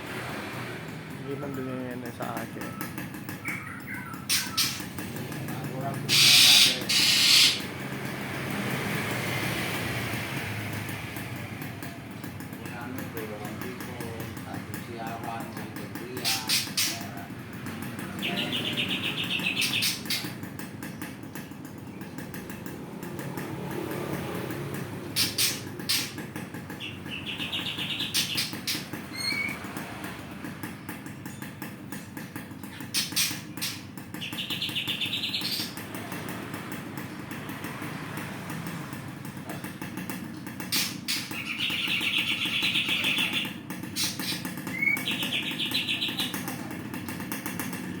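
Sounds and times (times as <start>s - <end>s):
songbird trills: 2.6s - 4.9s, 6.0s - 7.7s, 18.1s - 20.4s, 25.1s - 29.6s, 32.7s - 35.8s, 40.7s - 46.5s
bird chips: 2.6s - 5.1s, 6.1s - 7.7s, 25.1s - 29.6s, 40.4s - 46.4s.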